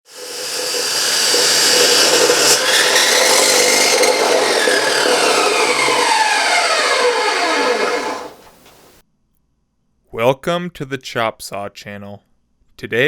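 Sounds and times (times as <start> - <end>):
chop saw cutting: 0.0 - 9.0.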